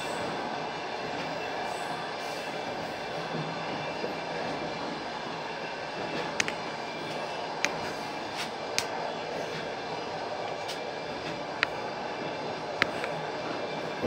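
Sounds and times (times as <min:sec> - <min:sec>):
train wheels rumbling on rails: 0:00.0 - 0:14.0
sharp rail clicks: 0:06.1 - 0:09.7.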